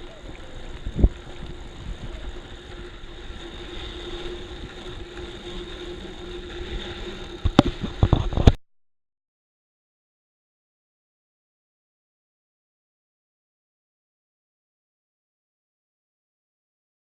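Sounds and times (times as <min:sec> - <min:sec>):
bicycle rolling on dirt: 0:00.0 - 0:08.6
faint steady hum: 0:00.0 - 0:08.6.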